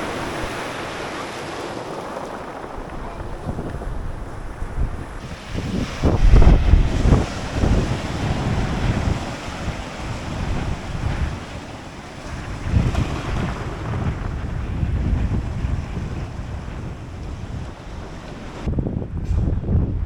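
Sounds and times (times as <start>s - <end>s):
waves breaking on rocks: 0.0s - 18.7s
wind buffeting microphone: 0.0s - 20.0s.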